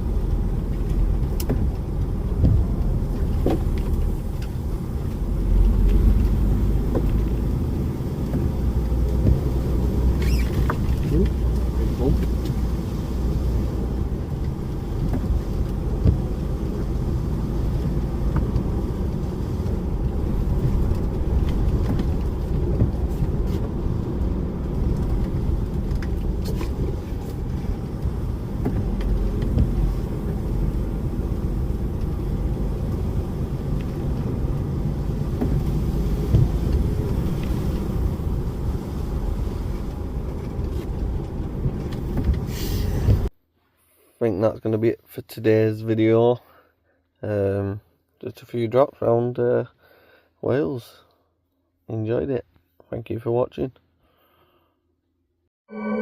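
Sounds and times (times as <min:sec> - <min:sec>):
lorry diesel engine rumble: 0:00.0 - 0:43.3
road noise: 0:00.0 - 0:43.4.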